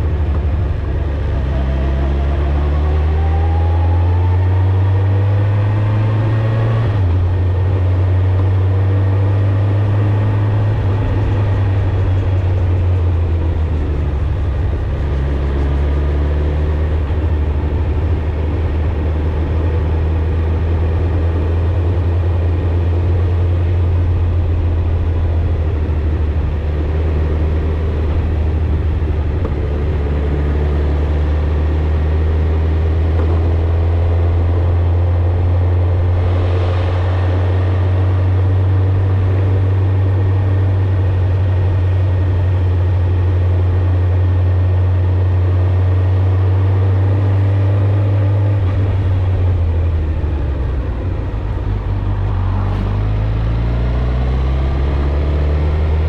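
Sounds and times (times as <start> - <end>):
wind rush: 23.7 - 42.8, 48.6 - 56.0.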